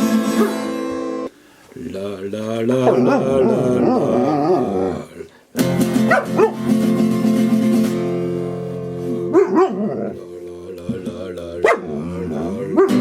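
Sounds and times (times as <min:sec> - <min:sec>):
dog howling: 0:02.7 - 0:05.2, 0:09.1 - 0:10.3, 0:11.6 - 0:13.0
acoustic guitar chord: 0:05.6 - 0:09.4.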